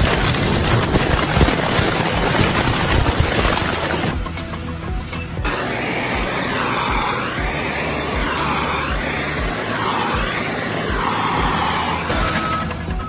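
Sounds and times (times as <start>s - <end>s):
loud sweeping hiss: 5.5s - 12.8s.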